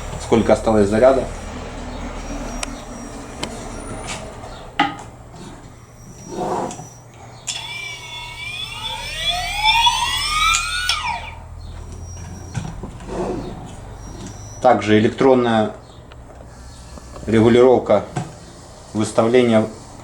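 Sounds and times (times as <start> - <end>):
machine motor whining: 0.0 - 14.7.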